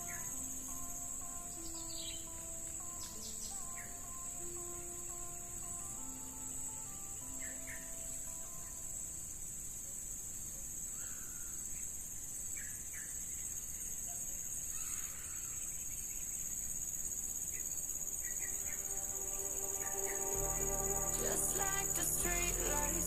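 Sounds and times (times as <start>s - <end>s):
background music: 0.0s - 9.0s, 17.7s - 23.0s
high-pitched insect drone: 16.5s - 23.0s.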